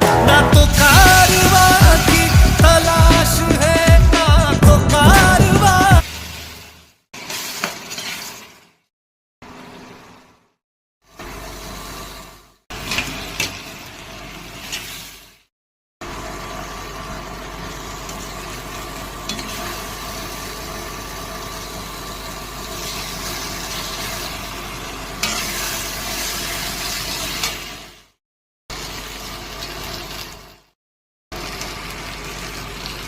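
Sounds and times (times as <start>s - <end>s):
vegetables sizzling in a pan: 6.0s - 8.8s, 11.2s - 15.4s, 16.1s - 28.1s, 28.7s - 30.7s, 31.4s - 33.0s.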